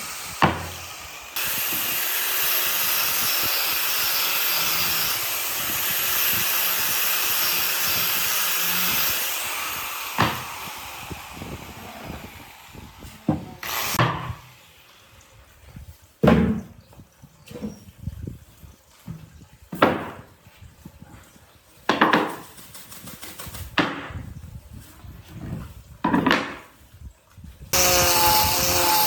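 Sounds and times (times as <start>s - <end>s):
power tool hissing: 0.0s - 14.6s, 27.8s - 29.0s
knocks of wood or tools: 0.4s - 0.9s, 10.2s - 10.5s, 13.3s - 14.4s, 16.2s - 16.7s, 19.7s - 20.3s, 21.9s - 22.4s, 26.0s - 26.7s.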